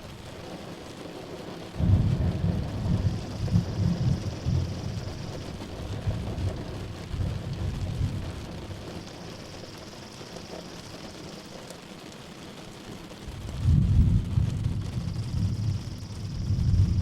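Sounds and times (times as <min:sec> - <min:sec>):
steady rain: 0:00.0 - 0:17.0
rolling thunder: 0:01.8 - 0:08.9, 0:13.3 - 0:17.0.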